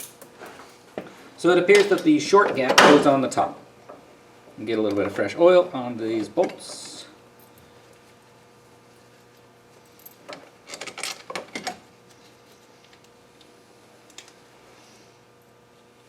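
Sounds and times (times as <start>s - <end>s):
metal bolts clinking and rattling: 0.0s - 0.3s, 9.9s - 11.8s.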